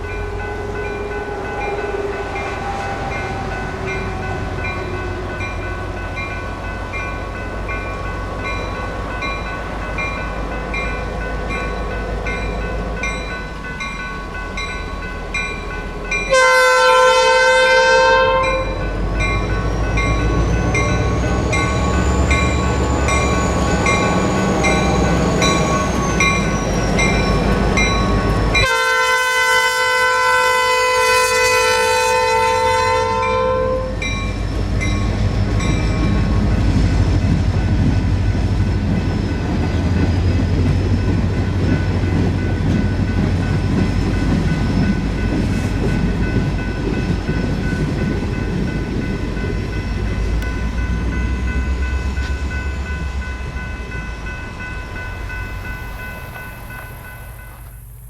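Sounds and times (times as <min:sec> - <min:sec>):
locomotive horn blasts: 0:16.3 - 0:18.9, 0:28.6 - 0:34.1
locomotive engine rumble: 0:18.4 - 0:30.2, 0:33.9 - 0:58.0.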